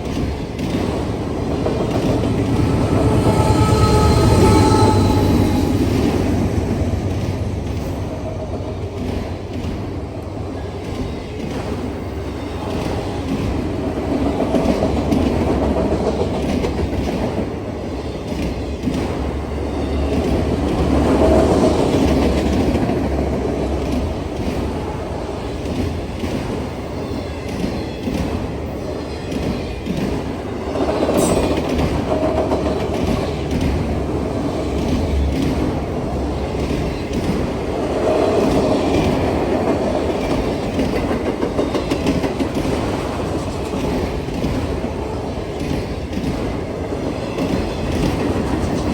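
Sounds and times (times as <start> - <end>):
freight train cars rumbling: 0.0 - 48.9
brief sharp squeal: 2.6 - 6.1, 31.2 - 31.9.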